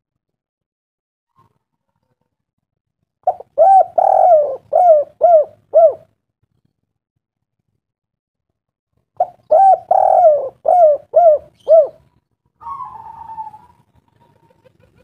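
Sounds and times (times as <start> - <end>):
bird calling: 3.3 - 6.0, 9.2 - 12.0, 12.6 - 14.5.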